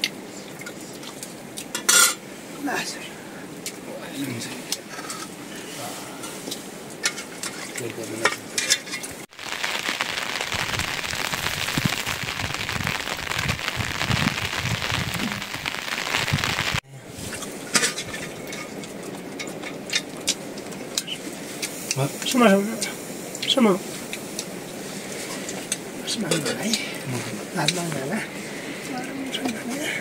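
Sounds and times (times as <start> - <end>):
heavy rain: 9.2 - 30.0.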